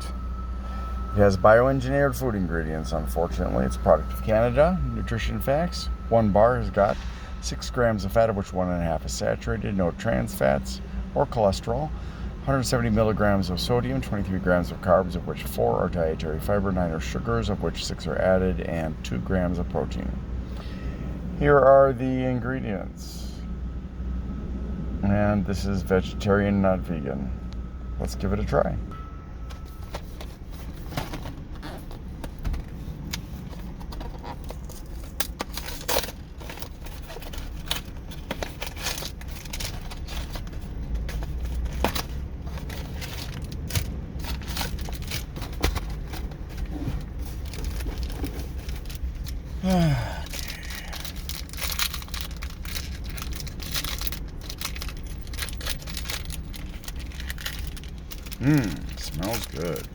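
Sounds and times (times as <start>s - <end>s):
plastic wrapper crinkling: 34.6s - 59.9s.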